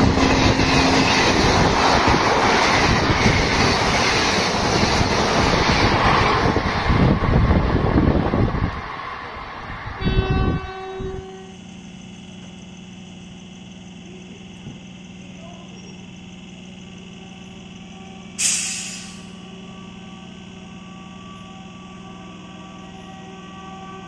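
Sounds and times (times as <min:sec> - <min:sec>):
electric train humming: 0:00.0 - 0:24.0
air brake hiss: 0:18.4 - 0:19.4.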